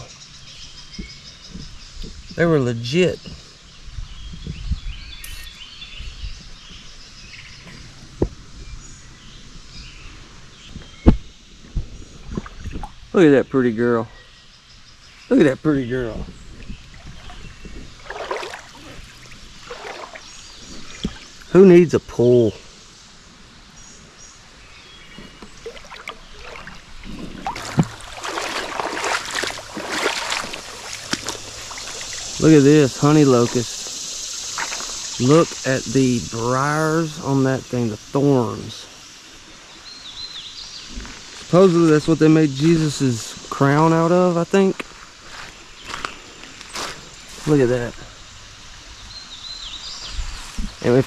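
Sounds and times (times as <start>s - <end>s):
birds chirping: 0.0s - 51.0s
insects: 0.0s - 51.0s
water sloshing and splashing: 12.2s - 13.1s, 16.5s - 21.5s, 25.2s - 35.7s.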